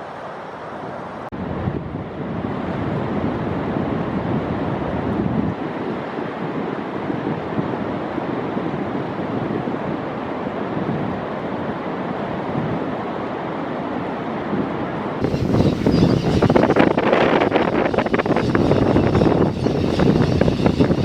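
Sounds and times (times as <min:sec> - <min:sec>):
rush of open water: 0:00.0 - 0:15.2
wind noise on microphone: 0:01.4 - 0:11.8, 0:14.5 - 0:21.0.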